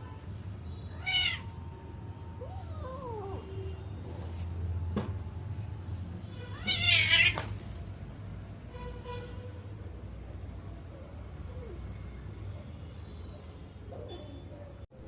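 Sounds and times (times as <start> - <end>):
kitten meowing: 0.9 - 1.6, 6.5 - 7.5.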